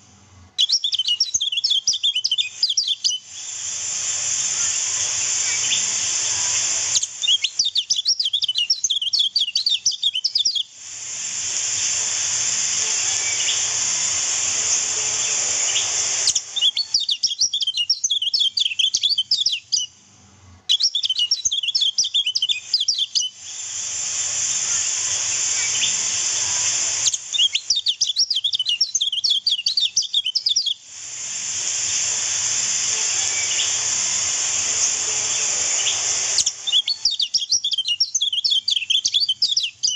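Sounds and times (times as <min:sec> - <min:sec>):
steady high hiss: 0:00.0 - 0:39.9
bird high rapid chirping: 0:00.6 - 0:03.6, 0:04.2 - 0:10.7, 0:11.7 - 0:20.0, 0:20.7 - 0:23.8, 0:24.6 - 0:30.8, 0:31.8 - 0:39.9.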